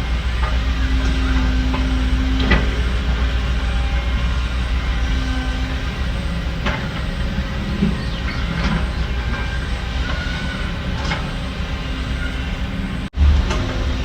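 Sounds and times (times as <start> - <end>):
heavy diesel machinery rumbling: 0.0 - 14.0
faint squeaks of steel: 0.1 - 13.1.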